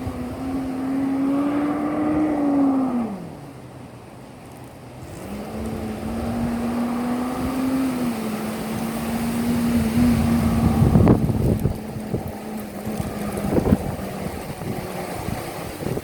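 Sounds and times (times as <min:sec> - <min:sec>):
diesel truck engine idling and revving: 0:04.9 - 0:16.0.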